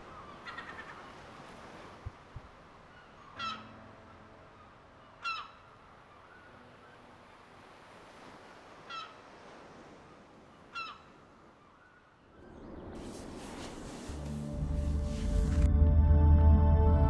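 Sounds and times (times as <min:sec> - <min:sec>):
low sustained music tones: 0:12.4 - 0:17.0.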